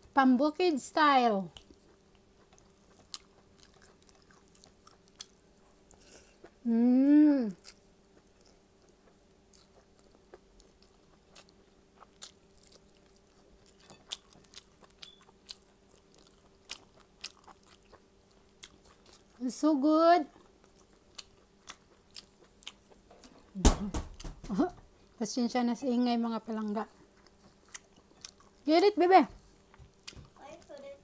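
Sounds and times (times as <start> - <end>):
faint steady hum: 0.0 - 31.0
soft chewing and biting clicks: 1.5 - 6.6, 7.5 - 19.4, 20.2 - 23.5, 26.6 - 28.7, 29.6 - 30.8.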